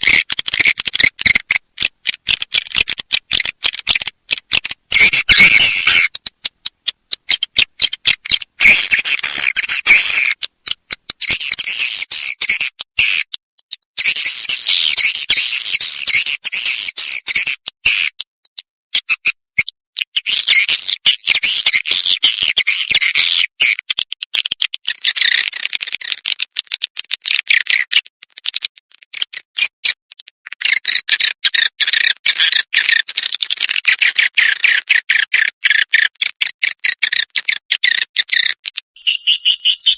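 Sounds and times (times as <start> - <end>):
swiftlet chittering calls: 0.0 - 13.2, 14.0 - 18.0, 37.0 - 39.9.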